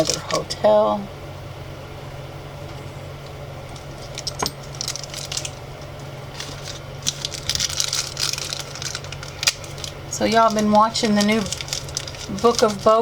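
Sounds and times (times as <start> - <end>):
plastic packets crinkling: 0.0 - 0.5, 3.7 - 13.0
steady low hum: 0.0 - 13.0
small tokens clicking and tapping: 6.4 - 12.9.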